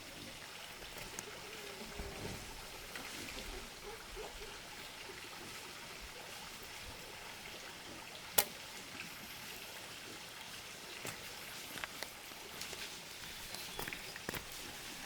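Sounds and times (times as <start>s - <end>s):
steady hiss: 0.0s - 7.5s.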